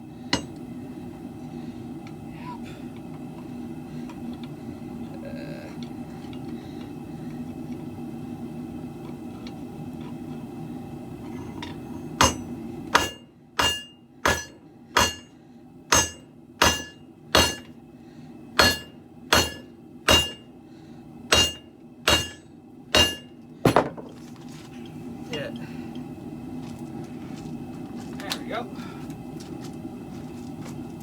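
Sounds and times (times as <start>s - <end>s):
hammer ringing on anvil: 0.4s - 0.6s, 12.2s - 15.3s, 15.9s - 17.7s, 18.6s - 20.5s, 21.3s - 22.4s, 23.0s - 23.8s.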